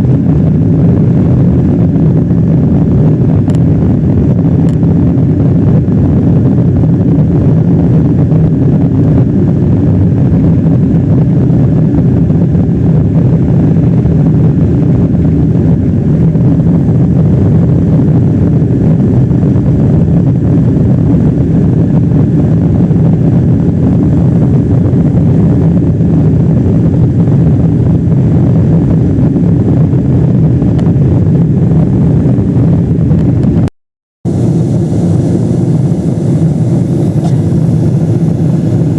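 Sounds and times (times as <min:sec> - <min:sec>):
jet engine rumble in cabin: 0:00.0 - 0:33.7, 0:34.3 - 0:38.9.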